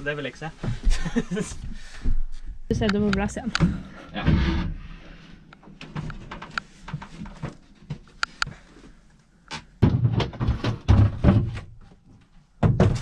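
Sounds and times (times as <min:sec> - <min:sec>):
heavy thumps of hatch boards: 0:09.8 - 0:11.8, 0:12.6 - 0:13.0
hatch boards clicking and knocking: 0:12.6 - 0:13.0.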